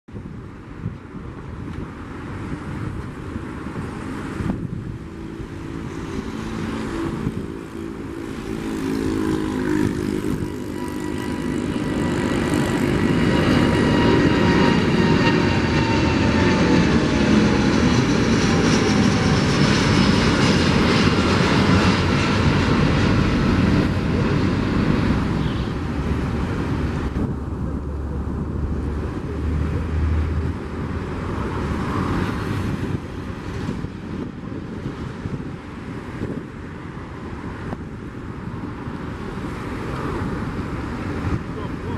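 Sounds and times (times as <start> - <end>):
jet engine roar: 0.1 - 41.9
whining engine tones: 4.5 - 31.6.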